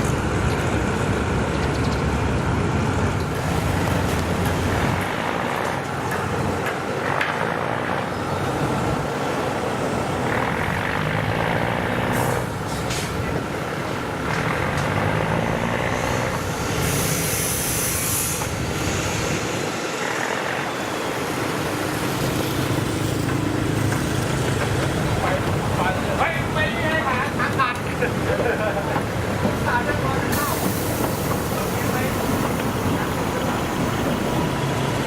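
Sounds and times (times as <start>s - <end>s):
railcar diesel engines running: 0.0s - 35.0s
air hissing: 16.2s - 20.3s, 30.2s - 34.6s.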